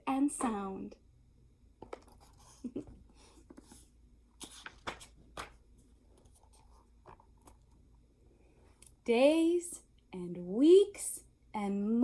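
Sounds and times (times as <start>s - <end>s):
book page turning: 3.3s - 7.7s.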